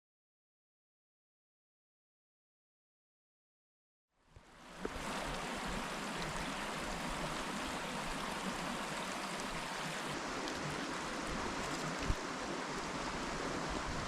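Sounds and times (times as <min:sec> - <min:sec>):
river water flowing: 0:04.2 - 0:14.0.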